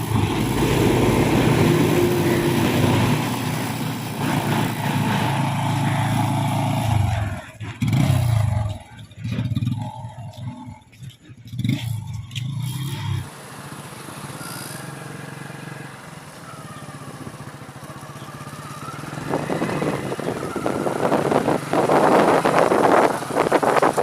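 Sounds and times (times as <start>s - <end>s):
motorcycle engine running: 0.0s - 24.0s
wind rushing over microphone: 18.8s - 24.0s.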